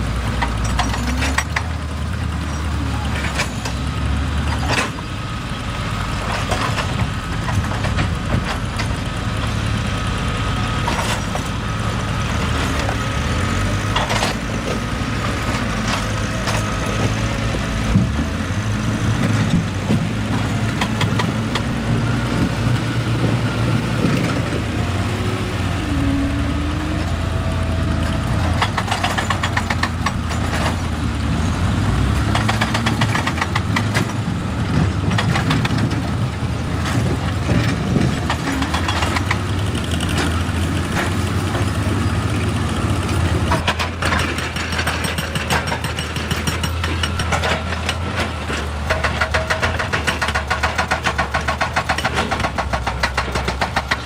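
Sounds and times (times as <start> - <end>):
excavator diesel engine running: 0.0 - 54.0
rock and metal clattering: 28.0 - 31.5.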